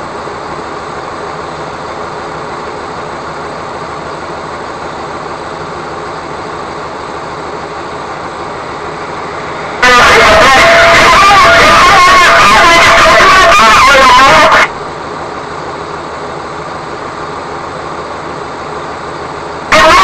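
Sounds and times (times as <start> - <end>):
vehicle running rumble and hiss: 0.0 - 20.0.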